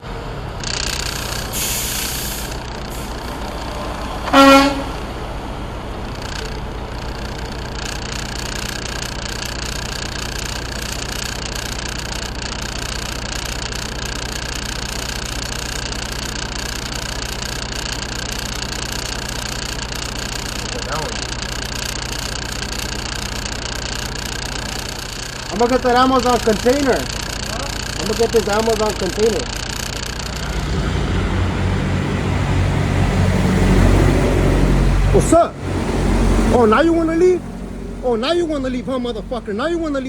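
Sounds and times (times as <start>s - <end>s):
diesel truck engine idling: 0.0s - 40.0s
air hisses: 1.0s - 3.3s
truck horn toot: 3.7s - 5.2s.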